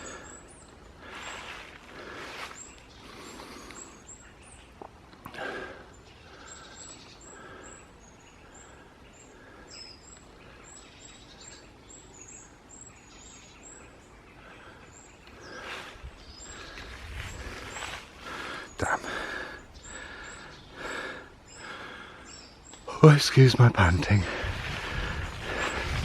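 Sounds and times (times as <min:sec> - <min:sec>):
rustling through undergrowth: 0:00.0 - 0:04.1, 0:15.4 - 0:20.2, 0:23.4 - 0:26.0
small birds chirping: 0:00.0 - 0:26.0
footsteps in undergrowth: 0:01.0 - 0:03.8, 0:15.6 - 0:18.6, 0:24.0 - 0:26.0.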